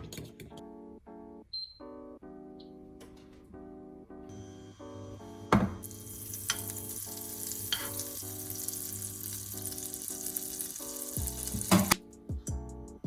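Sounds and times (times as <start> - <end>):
soft background music: 0.0 - 13.0
food sizzling in a pan: 5.8 - 12.0
utensils knocking against pan: 7.7 - 8.1.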